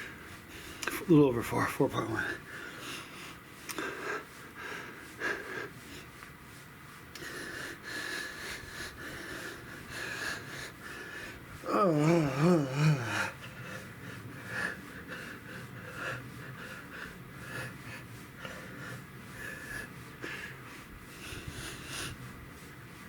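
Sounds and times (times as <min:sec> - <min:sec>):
man breathing hard: 0:00.0 - 0:01.0, 0:02.1 - 0:23.0
short wavering vocal sound: 0:11.7 - 0:13.4.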